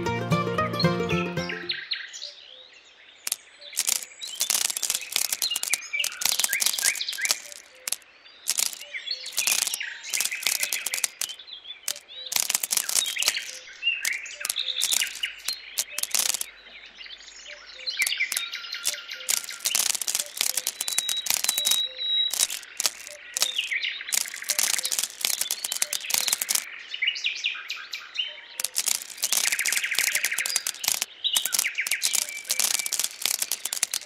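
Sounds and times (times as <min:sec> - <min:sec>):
small birds chirping: 0:03.1 - 0:26.7, 0:28.6 - 0:34.0
beans dropping onto sand: 0:03.3 - 0:16.5, 0:18.0 - 0:26.7, 0:28.6 - 0:34.0.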